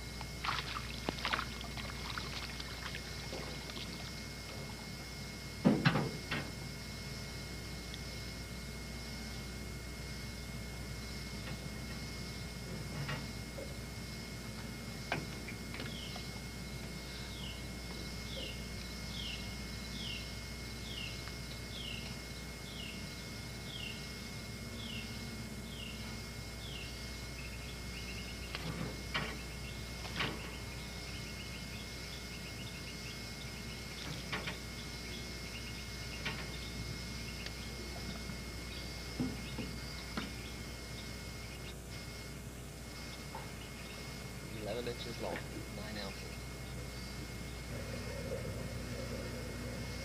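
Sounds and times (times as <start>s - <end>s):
camcorder hiss and hum: 0.0s - 50.0s
bird descending call: 46.2s - 50.0s.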